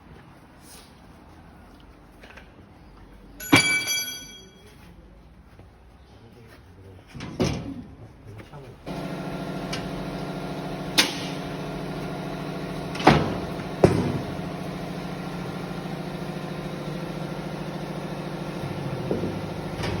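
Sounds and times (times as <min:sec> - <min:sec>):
machinery humming: 0:08.9 - 0:20.0
sharp knocks: 0:12.8 - 0:14.9.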